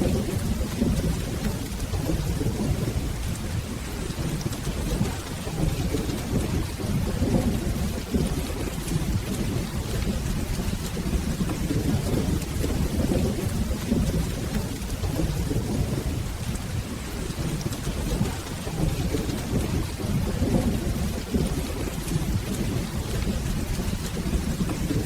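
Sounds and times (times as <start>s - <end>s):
low rolling thunder: 0.0s - 25.0s
steady rain: 0.0s - 25.0s.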